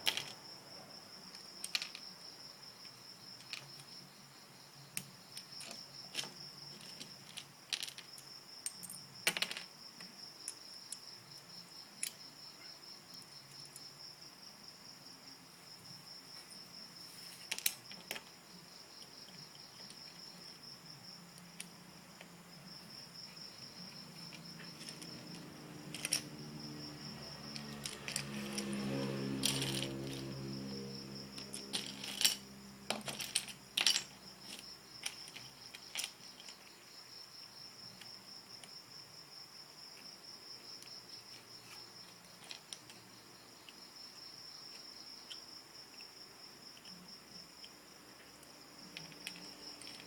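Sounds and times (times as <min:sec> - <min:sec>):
plastic bricks clicking and clattering: 0:00.0 - 0:00.4, 0:01.3 - 0:02.0, 0:03.4 - 0:03.9, 0:05.0 - 0:11.0, 0:17.5 - 0:18.3, 0:24.2 - 0:26.3, 0:31.4 - 0:36.7.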